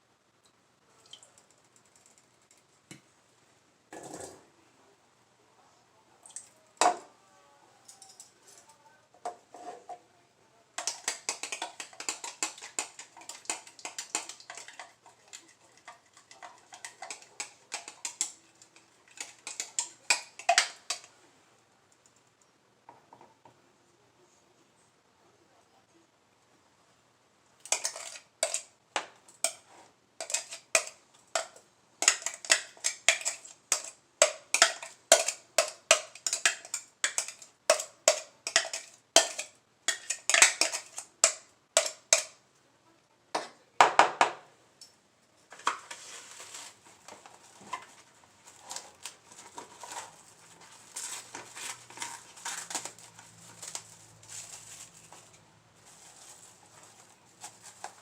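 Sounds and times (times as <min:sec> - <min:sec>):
scraping and stirring: 0:07.9 - 0:10.0, 0:10.8 - 0:21.2, 0:27.6 - 0:42.4, 0:45.4 - 0:58.0.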